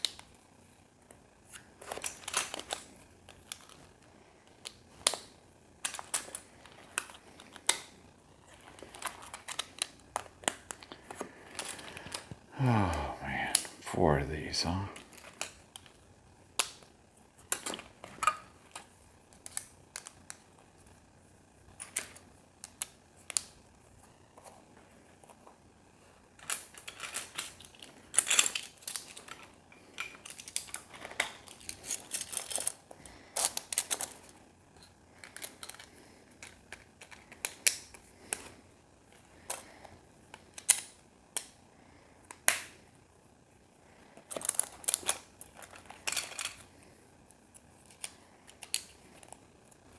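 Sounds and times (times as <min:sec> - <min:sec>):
plastic building pieces clicking: 0:04.6 - 0:07.9, 0:26.4 - 0:34.3, 0:35.2 - 0:38.5, 0:40.3 - 0:41.6, 0:47.8 - 0:49.4.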